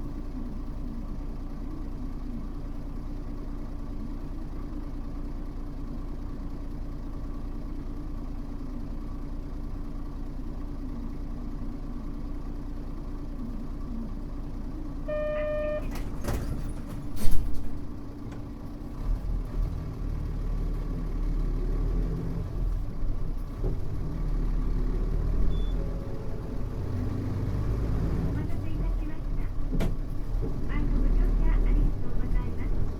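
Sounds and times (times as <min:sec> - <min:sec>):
bus diesel engine: 0:00.0 - 0:32.9
electronic tone: 0:15.1 - 0:15.9.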